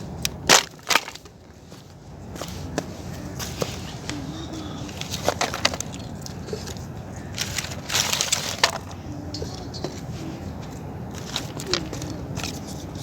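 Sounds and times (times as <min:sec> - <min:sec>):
dry twigs snapping and crunching: 0:00.2 - 0:01.4.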